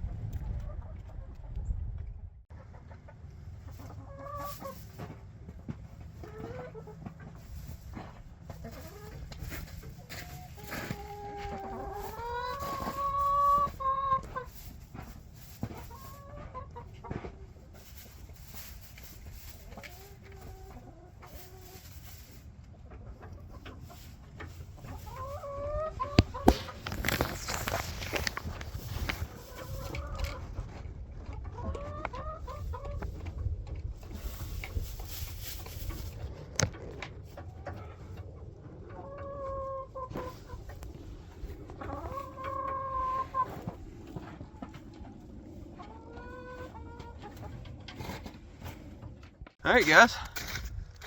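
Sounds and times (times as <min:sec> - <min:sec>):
chicken clucks: 0:00.0 - 0:01.7, 0:02.5 - 0:49.6
steady low rumble: 0:00.0 - 0:02.5, 0:32.4 - 0:38.9, 0:40.2 - 0:42.5, 0:43.2 - 0:49.4.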